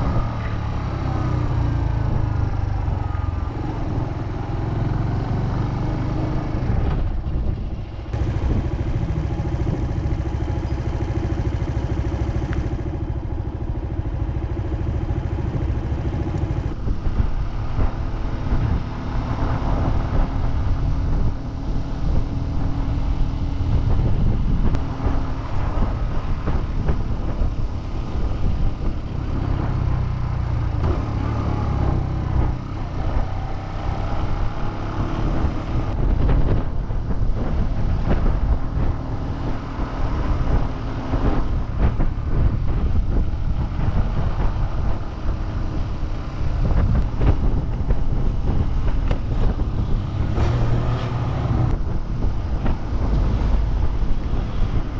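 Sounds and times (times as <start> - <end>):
motorcycle engine running: 0.0 - 54.9
road and wind noise: 0.0 - 54.9.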